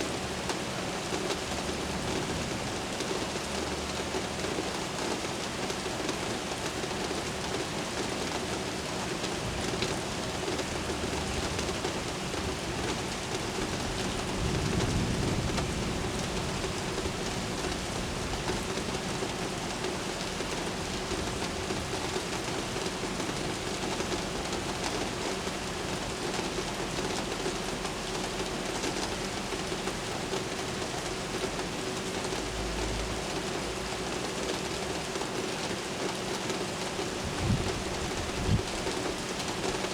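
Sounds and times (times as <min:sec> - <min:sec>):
steady rain: 0:00.0 - 0:39.9
distant thunder rumble: 0:10.9 - 0:18.6, 0:37.2 - 0:39.6.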